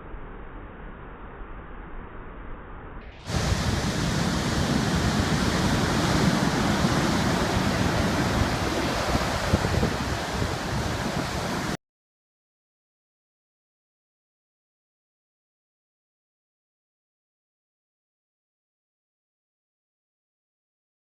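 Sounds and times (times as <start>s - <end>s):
heavy surf rushing: 3.2s - 11.8s
wind buffeting microphone: 3.3s - 11.8s.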